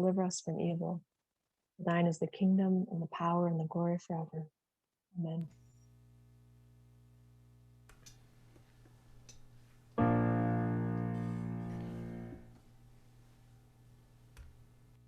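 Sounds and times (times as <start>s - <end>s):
piano chord: 10.0s - 12.5s.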